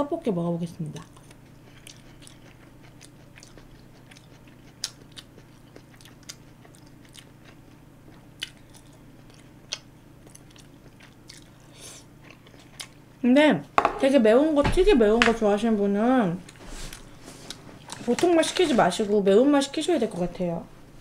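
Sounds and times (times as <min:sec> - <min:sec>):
wet chewing mouth clicks: 0:01.0 - 0:13.0.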